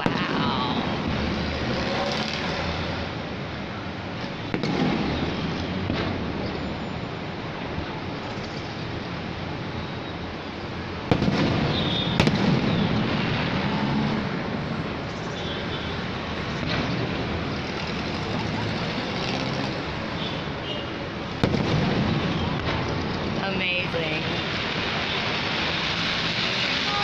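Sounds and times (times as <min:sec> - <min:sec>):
fireworks bursting: 0:00.0 - 0:03.2, 0:04.1 - 0:06.8, 0:10.9 - 0:20.2, 0:21.2 - 0:27.0
steady rushing noise: 0:00.0 - 0:27.0.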